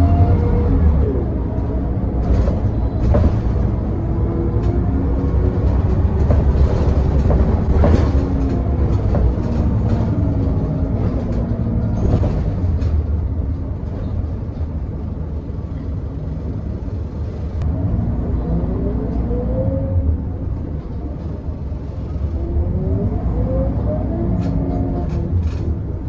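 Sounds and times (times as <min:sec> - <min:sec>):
bus body rattling and knocking: 0:00.0 - 0:17.6, 0:23.9 - 0:26.0
bus engine running: 0:00.0 - 0:26.0.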